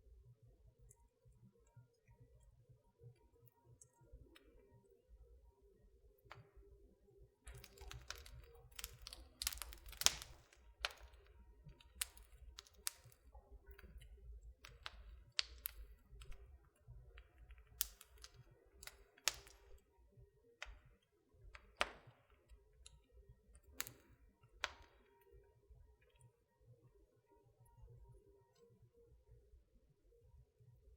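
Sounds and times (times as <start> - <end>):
wood fire crackling: 7.5 - 20.0, 20.6 - 25.2.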